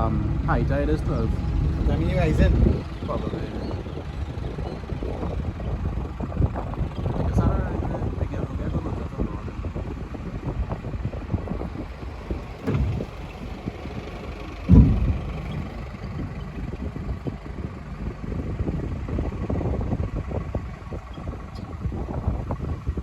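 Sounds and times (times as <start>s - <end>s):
engine running: 0.0s - 23.0s
low buffeting: 0.0s - 23.0s
thumps: 11.7s - 15.9s.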